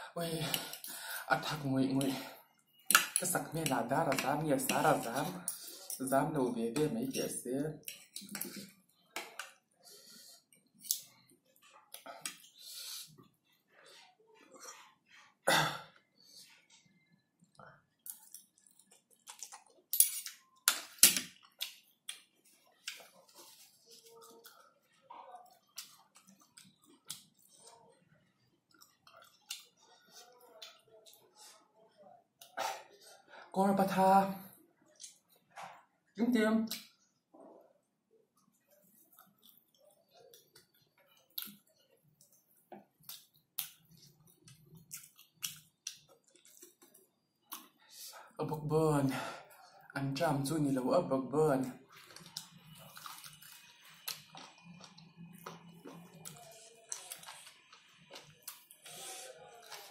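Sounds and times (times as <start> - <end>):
person chewing noodles: 16.0 - 33.2, 38.4 - 48.2, 51.8 - 59.9.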